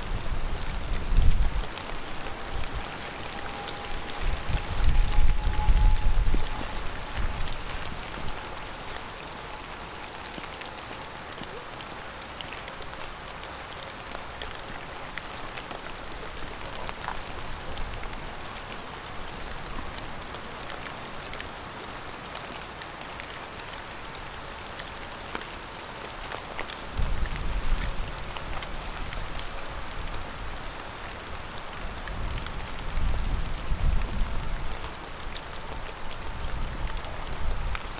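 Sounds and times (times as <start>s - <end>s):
low rumble: 0.0s - 10.1s
rain falling: 0.0s - 37.9s.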